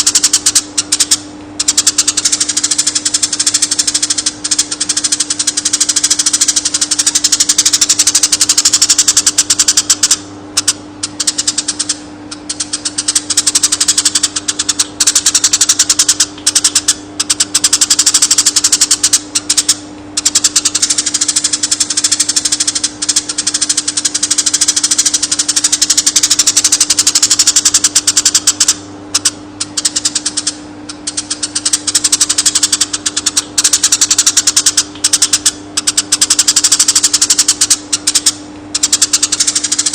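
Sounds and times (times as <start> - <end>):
sparrow singing a rattling trill: 0.0 - 39.9
steady low hum: 0.0 - 39.9.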